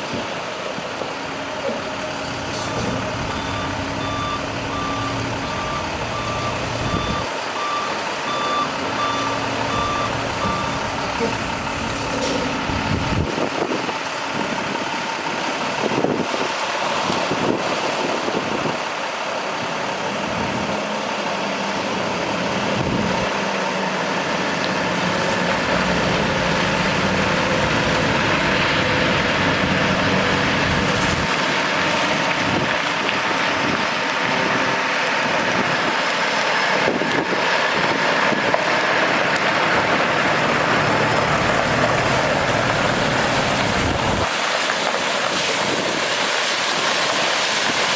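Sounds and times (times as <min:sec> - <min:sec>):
diesel truck engine running: 0:00.0 - 0:47.9.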